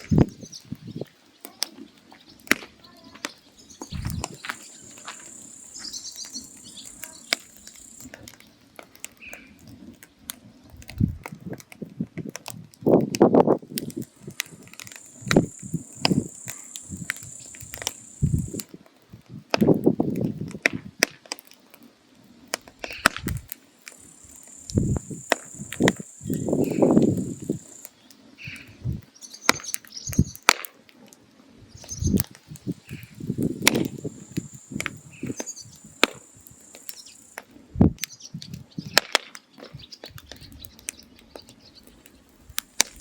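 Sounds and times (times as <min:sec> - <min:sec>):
firewood crackling and popping: 0:00.0 - 0:43.0
high steady insect-like buzz: 0:03.8 - 0:08.1, 0:14.0 - 0:18.6, 0:23.8 - 0:27.9, 0:32.8 - 0:37.4.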